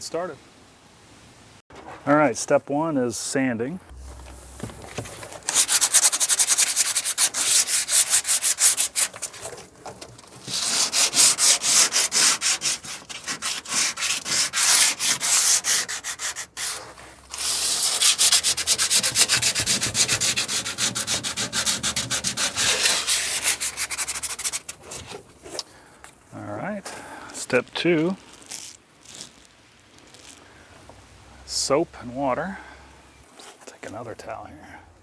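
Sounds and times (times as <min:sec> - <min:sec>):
hand sanding scraping strokes: 0:03.9 - 0:25.8.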